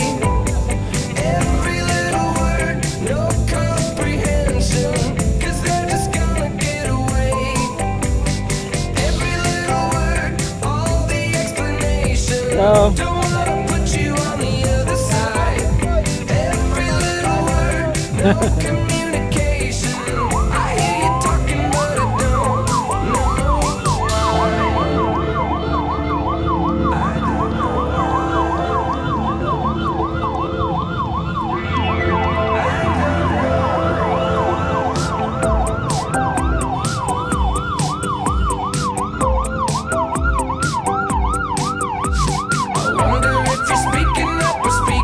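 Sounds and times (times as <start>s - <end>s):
background music with low beat: 0.0s - 27.4s, 33.0s - 45.0s
electronic siren yelping: 11.3s - 45.0s.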